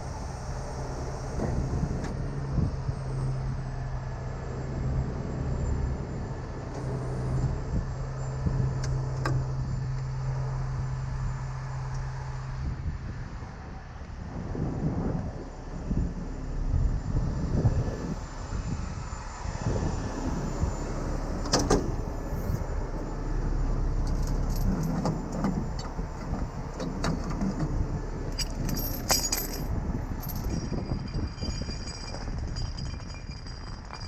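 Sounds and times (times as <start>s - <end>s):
diesel truck engine idling: 15.5s - 28.8s
metal chain clinking: 24.0s - 25.9s, 28.3s - 34.0s.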